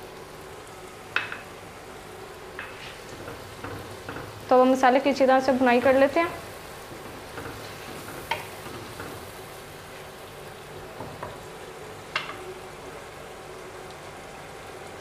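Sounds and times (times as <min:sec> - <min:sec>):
masala sizzling: 0:00.0 - 0:15.0
wooden spatula knocking a pan: 0:01.2 - 0:01.5, 0:06.9 - 0:09.3, 0:12.1 - 0:12.4.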